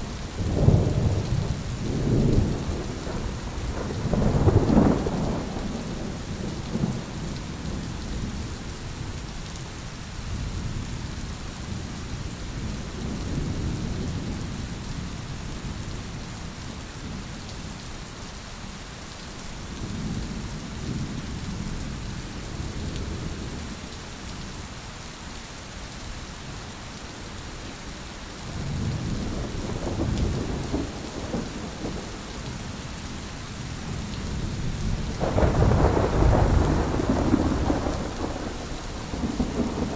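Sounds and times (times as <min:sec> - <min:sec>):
steady rain hissing: 0:00.0 - 0:39.9
thunder rumbling: 0:00.4 - 0:09.2, 0:28.5 - 0:39.9.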